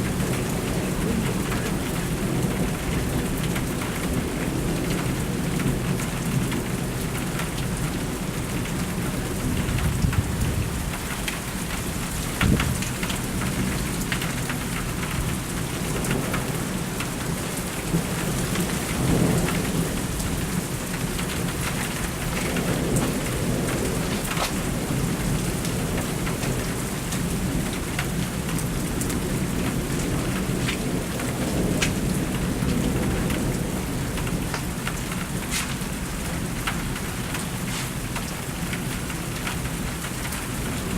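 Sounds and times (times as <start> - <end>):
heavy rain: 0.0 - 40.9
thunder rumbling: 9.1 - 11.1, 15.9 - 38.1.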